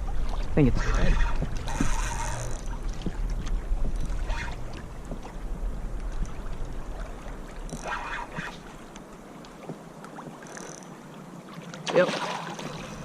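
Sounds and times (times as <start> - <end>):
wind rumbling on microphone: 0.0 - 10.4.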